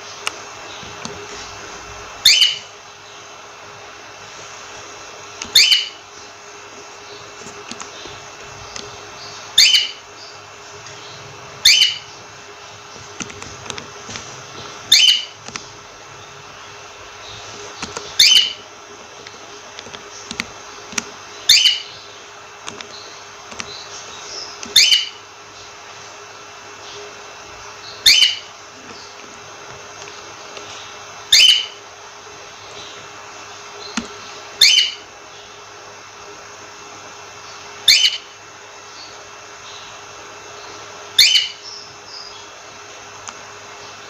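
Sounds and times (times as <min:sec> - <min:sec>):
cockatiel calling: 0:02.2 - 0:02.7, 0:05.4 - 0:06.0, 0:08.8 - 0:10.4, 0:11.0 - 0:12.2, 0:14.8 - 0:15.4, 0:18.0 - 0:18.6, 0:21.4 - 0:22.2, 0:24.3 - 0:25.3, 0:27.8 - 0:28.5, 0:31.3 - 0:31.8, 0:34.6 - 0:35.1, 0:37.8 - 0:38.4, 0:41.1 - 0:42.5
soft bird chirps: 0:02.2 - 0:03.4, 0:05.4 - 0:13.8, 0:14.4 - 0:18.7, 0:19.3 - 0:29.2, 0:30.0 - 0:31.8, 0:32.5 - 0:35.7, 0:37.3 - 0:42.7.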